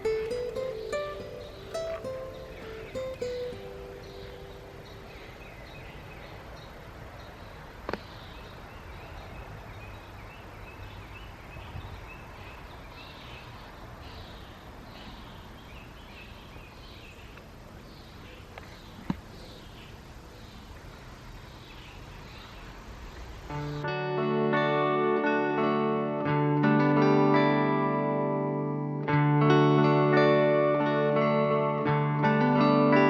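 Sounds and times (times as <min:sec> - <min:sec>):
small bird chirping: 0:00.0 - 0:10.1.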